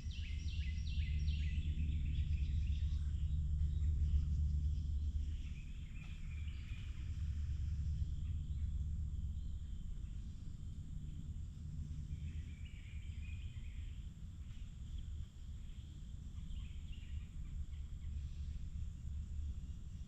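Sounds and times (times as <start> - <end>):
faint bird chirps: 0.0 - 11.2
low forest rumble: 0.0 - 20.0.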